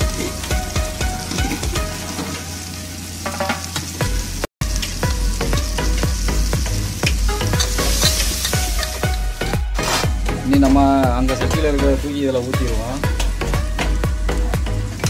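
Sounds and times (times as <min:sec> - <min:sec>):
masala sizzling in oil: 0:00.0 - 0:15.0
ladle scraping metal pot: 0:07.5 - 0:10.4.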